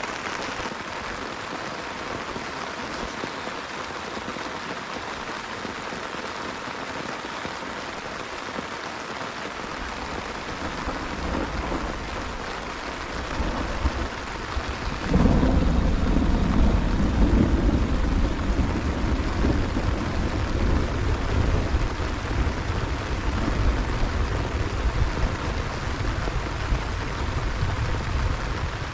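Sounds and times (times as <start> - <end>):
heavy rain falling: 0.0 - 28.9
thunder rumbling and clapping: 9.6 - 28.9.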